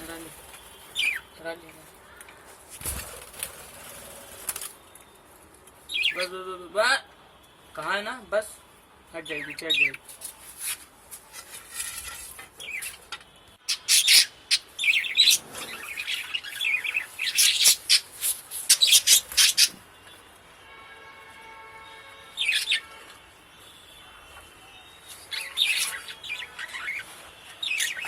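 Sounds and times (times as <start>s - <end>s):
parrots chirping and calling: 0.9s - 1.4s, 5.9s - 6.3s, 13.6s - 19.8s, 22.3s - 23.0s, 25.2s - 28.0s.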